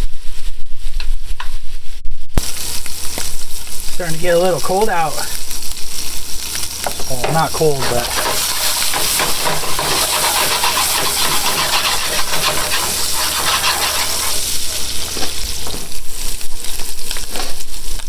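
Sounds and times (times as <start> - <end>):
food sizzling in a frying pan: 2.4 - 18.0
utensil stirring food: 3.5 - 18.0.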